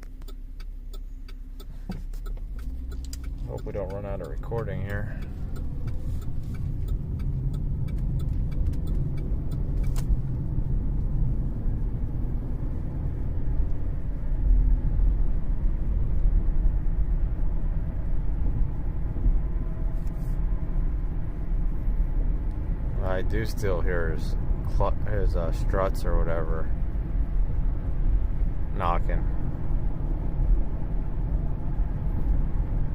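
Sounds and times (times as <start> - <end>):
car cabin road rumble: 0.0 - 32.9.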